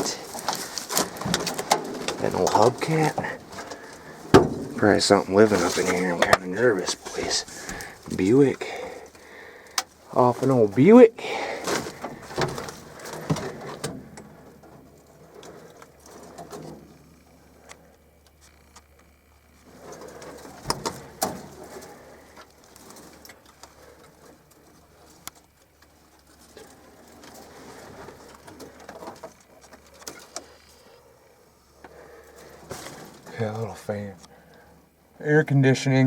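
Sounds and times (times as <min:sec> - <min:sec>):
sharp knocks: 0:04.3 - 0:05.2.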